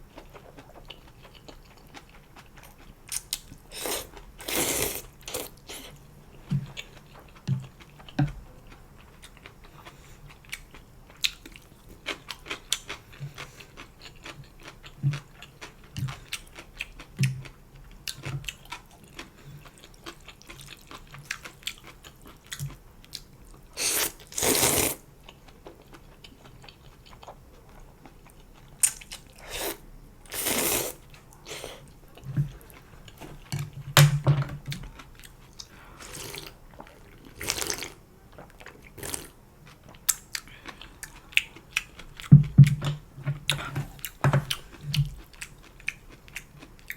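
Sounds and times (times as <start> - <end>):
slurping noodles: 3.7 - 5.9, 23.8 - 25.0, 29.4 - 31.8, 36.0 - 36.6
wet chewing with mouth clicks: 34.6 - 46.9.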